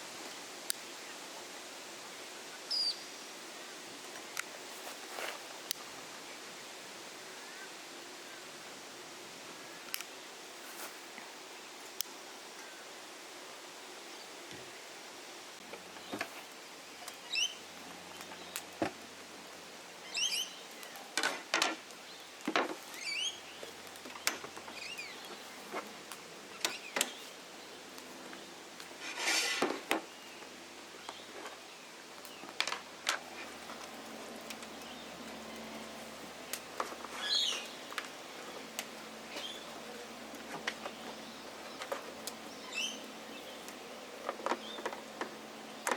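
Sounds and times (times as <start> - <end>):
scraping rustle: 4.0 - 6.1, 10.6 - 11.2, 28.1 - 30.1
birds chirping: 15.7 - 18.8, 20.0 - 21.2, 22.0 - 28.7, 29.9 - 45.9.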